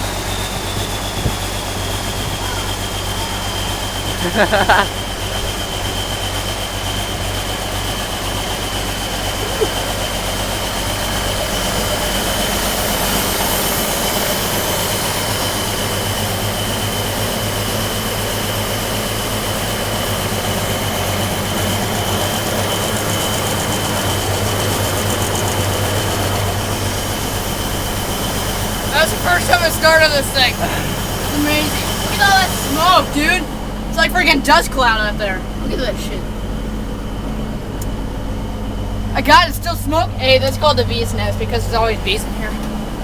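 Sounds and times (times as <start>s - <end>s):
diesel tractor engine running: 0.0s - 43.0s
high whine: 20.1s - 43.0s.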